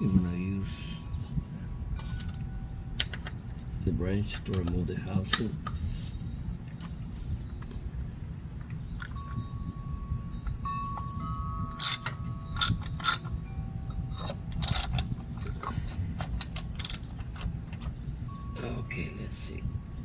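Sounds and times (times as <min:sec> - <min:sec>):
metal tools clinking: 0:11.8 - 0:13.3, 0:14.2 - 0:15.7, 0:16.3 - 0:17.2
ratchet clicking: 0:11.8 - 0:13.3, 0:14.2 - 0:15.1, 0:16.4 - 0:17.1.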